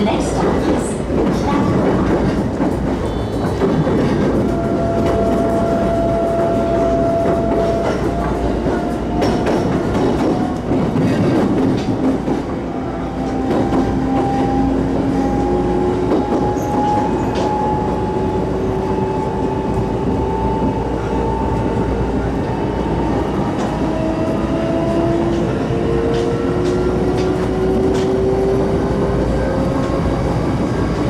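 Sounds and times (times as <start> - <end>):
train wheels clacking over rail joints: 0.4 - 12.6, 13.2 - 14.6.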